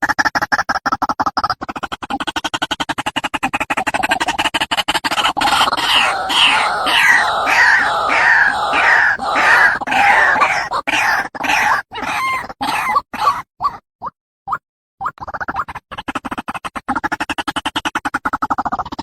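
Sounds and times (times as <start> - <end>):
waterhen harsh calls: 5.6 - 13.0.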